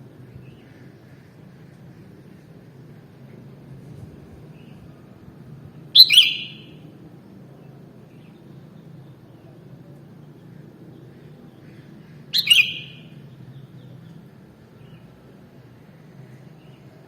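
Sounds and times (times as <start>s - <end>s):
bird call: 6.0s - 6.8s, 12.3s - 13.2s.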